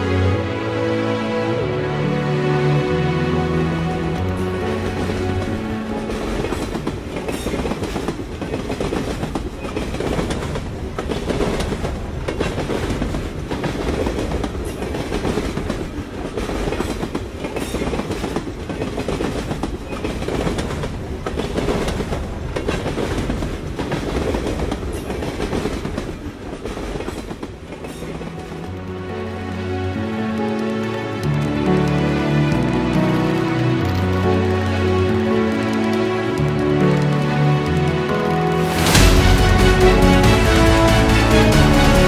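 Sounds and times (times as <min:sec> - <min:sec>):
train rumbling along track: 0:00.0 - 0:42.0.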